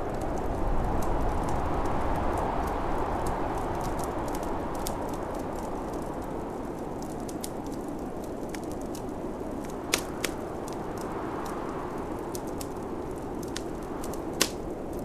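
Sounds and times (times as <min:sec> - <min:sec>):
rushing wind of a snowstorm: 0:00.0 - 0:15.0
wood fire crackling: 0:00.0 - 0:15.0
sharp pops of fire: 0:06.7 - 0:11.5, 0:12.1 - 0:15.0.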